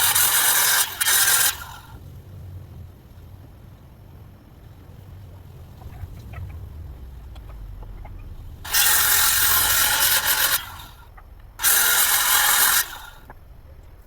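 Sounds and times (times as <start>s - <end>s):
power tool running: 0.0s - 2.0s, 8.6s - 11.0s, 11.6s - 13.3s.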